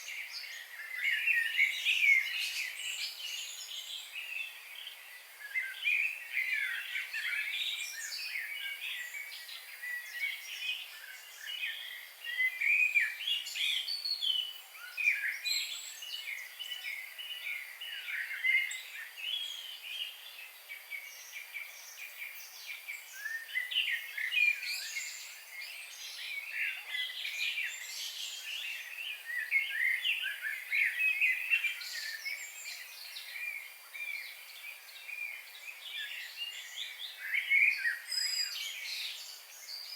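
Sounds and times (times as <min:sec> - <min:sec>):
small birds chirping: 0:00.0 - 0:39.9
steady background hiss: 0:00.0 - 0:39.9.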